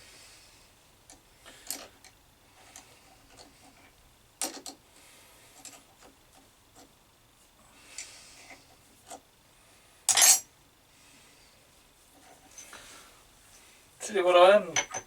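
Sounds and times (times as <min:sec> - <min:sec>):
metal tools clicking and knocking: 0:10.1 - 0:10.5, 0:14.8 - 0:15.0.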